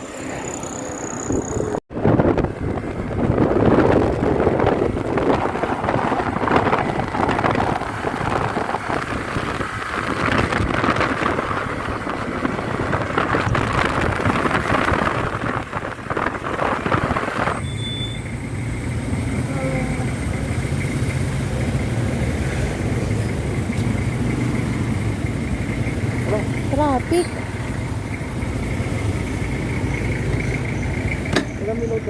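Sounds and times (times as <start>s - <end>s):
scooter road and engine noise: 0.0s - 32.0s
wind rushing over microphone: 1.0s - 17.6s.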